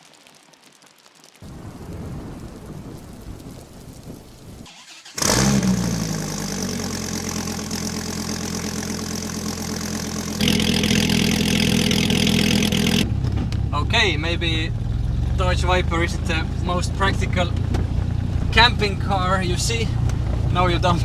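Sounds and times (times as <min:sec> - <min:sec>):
car engine starting and idling: 0:04.7 - 0:21.0.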